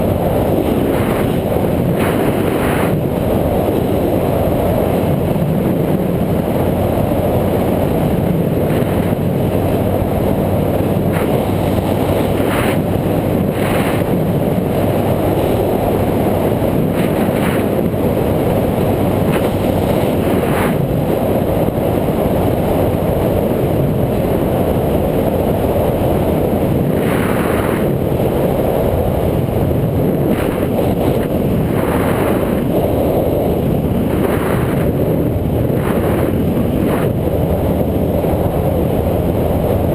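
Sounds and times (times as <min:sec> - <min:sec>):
wind on microphone: 0:00.0 - 0:39.9.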